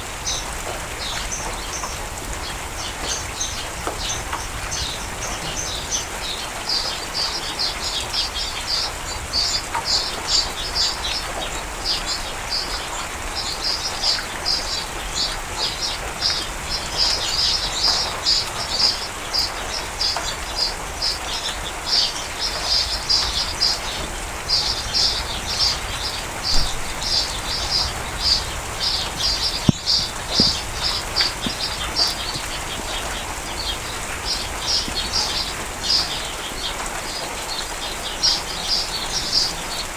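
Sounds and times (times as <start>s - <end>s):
steady rain: 0.0s - 39.9s
birds chirping: 0.1s - 39.9s
sharp tap: 29.6s - 32.5s.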